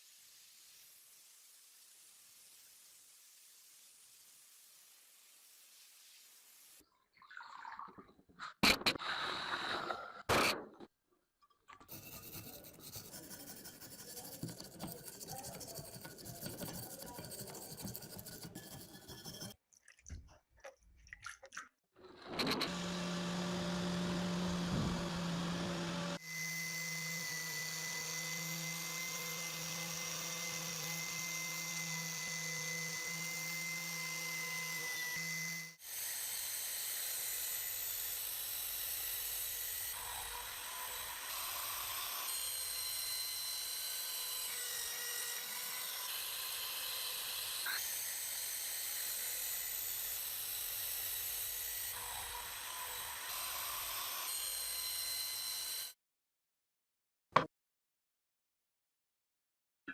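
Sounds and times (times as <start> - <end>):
scraping and rubbing: 11.9 - 19.6
small power tool running: 22.4 - 56.0.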